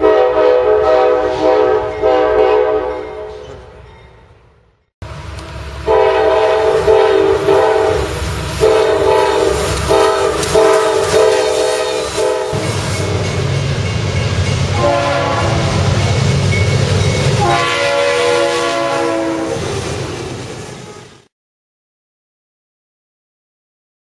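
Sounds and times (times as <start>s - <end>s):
locomotive air horn blasts: 0.0s - 3.4s, 5.8s - 13.2s, 14.7s - 16.0s, 17.4s - 19.7s
train rumble: 0.1s - 21.3s.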